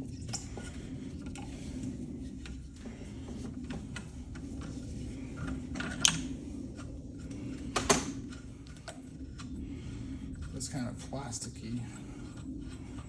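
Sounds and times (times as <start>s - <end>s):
steady low hum: 0.0s - 13.0s
fan parts clicking and knocking: 0.2s - 9.6s.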